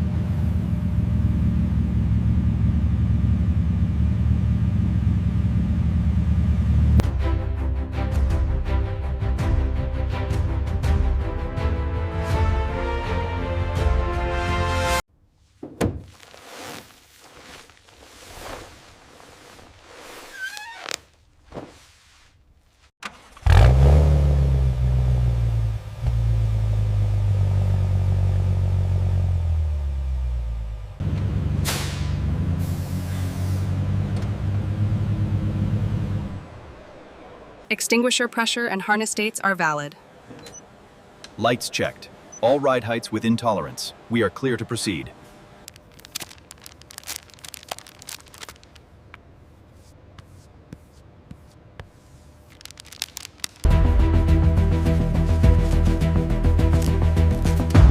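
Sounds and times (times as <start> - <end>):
car engine starting and idling: 0.0 - 8.3, 23.0 - 37.7, 52.7 - 57.9
deep steady rumble: 0.0 - 10.0, 23.5 - 37.6, 52.7 - 57.9
music with sustained notes: 53.7 - 57.9.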